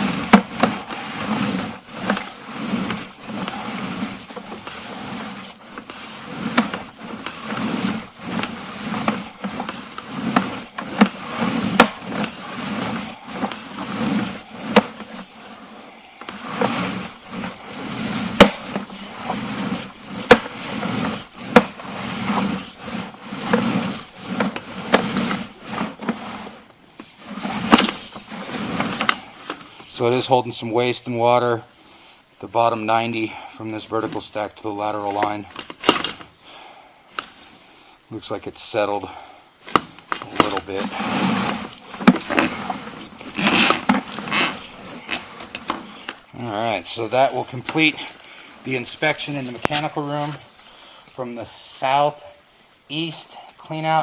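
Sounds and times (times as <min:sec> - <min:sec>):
cable rattling in pipe: 0:00.0 - 0:30.2, 0:39.6 - 0:50.4.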